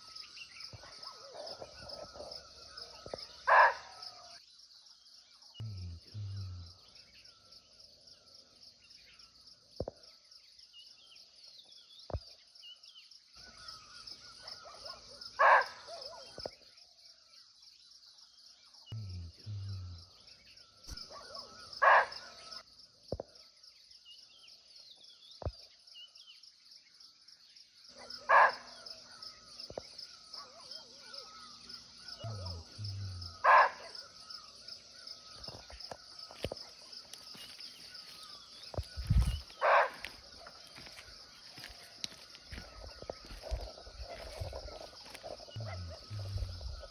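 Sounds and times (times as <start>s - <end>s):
high insect chorus: 0.0s - 46.9s
deer barking: 32.2s - 34.0s, 45.6s - 46.9s.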